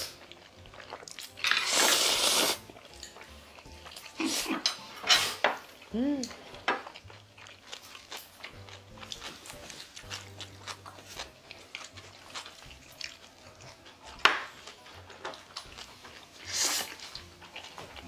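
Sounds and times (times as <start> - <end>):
people chewing noodles: 0.0 - 18.0.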